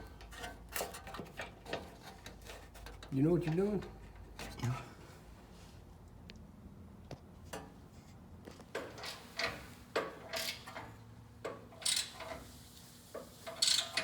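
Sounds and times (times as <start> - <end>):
metallic clinks and scrapes of tools: 11.7 - 12.5, 13.1 - 14.0.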